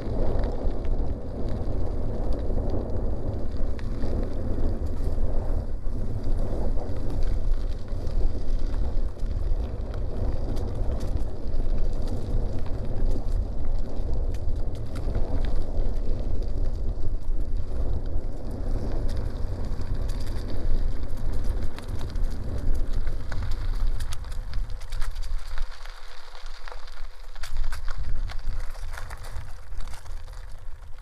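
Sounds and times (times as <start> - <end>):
bicycle tyres rolling on gravel: 0.0 - 31.0
wind rushing over microphone: 0.0 - 31.0
stones clicking: 21.0 - 31.0.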